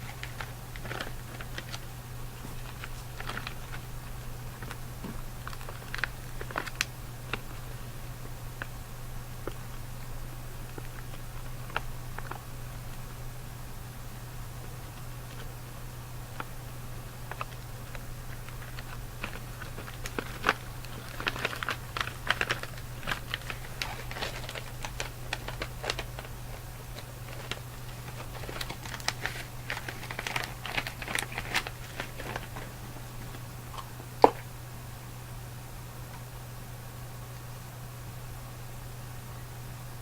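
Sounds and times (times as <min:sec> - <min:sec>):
snack packaging crinkling: 0:00.0 - 0:07.8, 0:10.6 - 0:13.1, 0:16.3 - 0:34.5
low background hum: 0:00.0 - 0:40.0.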